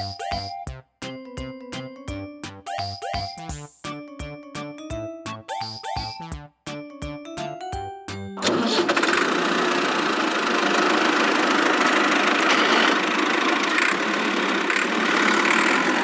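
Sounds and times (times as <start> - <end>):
vehicle engine rumbling: 11.9 - 16.0.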